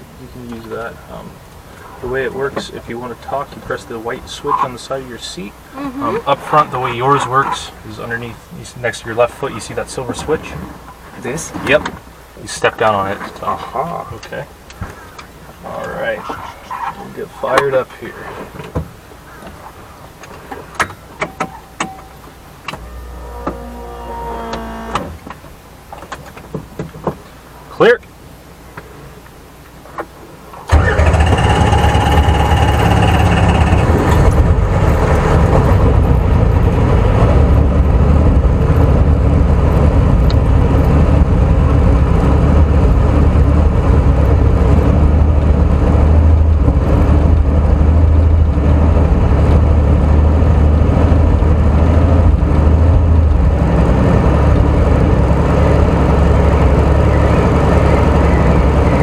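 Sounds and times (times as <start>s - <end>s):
high whine: 21.2s - 25.7s
helicopter engine drone: 30.7s - 34.6s.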